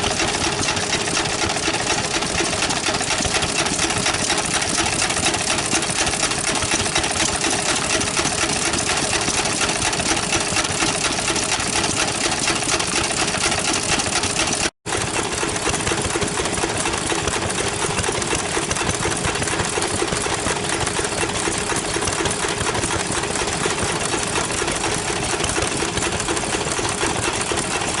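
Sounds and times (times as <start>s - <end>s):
stationary engine knocking: 0.0s - 28.0s.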